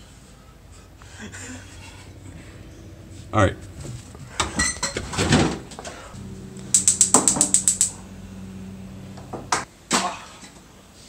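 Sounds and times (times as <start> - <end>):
steady low hum: 0.2 - 9.7
gas burner igniter clicking: 6.6 - 8.0.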